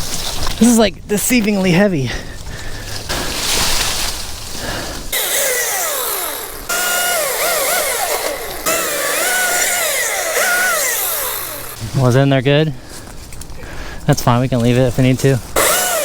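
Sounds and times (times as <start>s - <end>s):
rough rustling noise: 0.0s - 5.2s
chainsaw revving and cutting: 5.1s - 12.1s, 15.6s - 16.0s.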